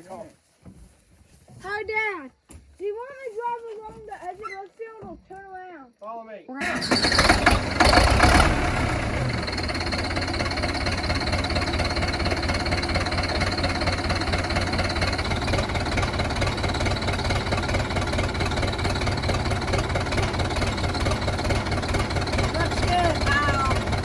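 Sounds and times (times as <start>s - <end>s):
vehicle engine idling: 6.6s - 24.0s.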